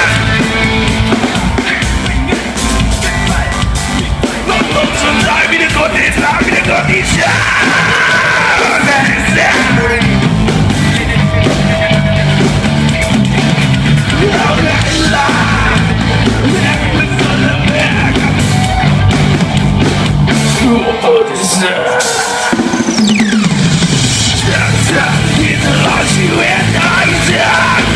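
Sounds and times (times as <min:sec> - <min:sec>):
person singing or shouting: 0:00.0 - 0:10.2, 0:14.1 - 0:19.1, 0:24.3 - 0:27.9
electric guitar: 0:00.0 - 0:21.1, 0:21.8 - 0:27.9
bass guitar: 0:00.0 - 0:21.2, 0:21.8 - 0:27.9
drums: 0:00.0 - 0:27.9.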